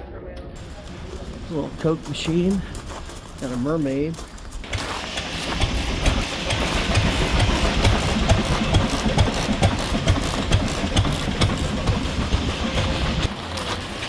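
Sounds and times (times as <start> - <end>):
engine running with rapid pulsing: 4.3 - 14.0.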